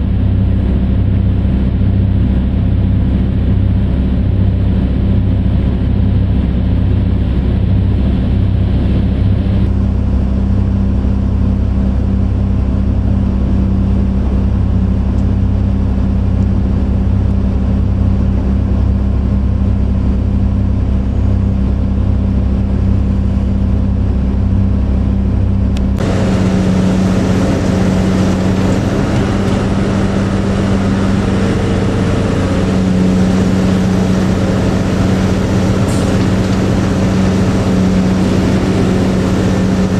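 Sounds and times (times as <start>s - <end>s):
diesel engines droning: 25.7s - 39.9s.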